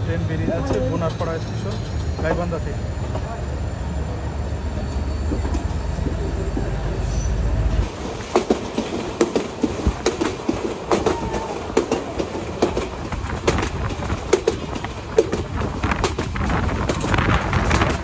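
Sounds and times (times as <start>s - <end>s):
train rumble: 0.0s - 18.0s
wheels clacking on track: 5.2s - 18.0s.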